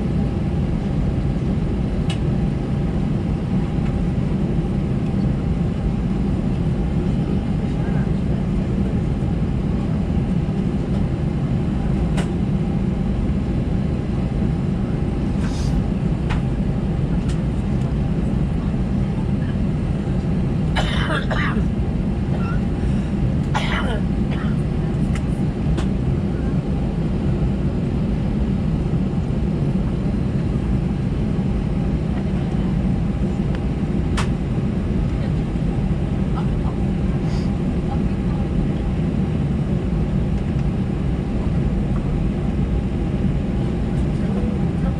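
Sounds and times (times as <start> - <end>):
jet engines idling in cabin: 0.0 - 44.9.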